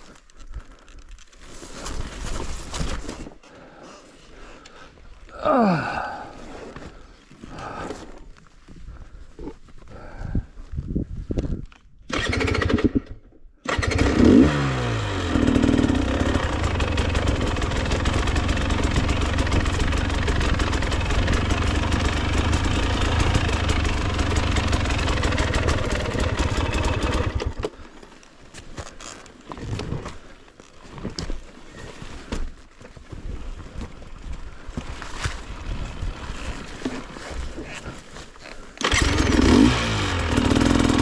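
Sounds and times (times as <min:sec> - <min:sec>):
dirt bike engine starting and running: 0:12.1 - 0:28.2, 0:35.0 - 0:41.0.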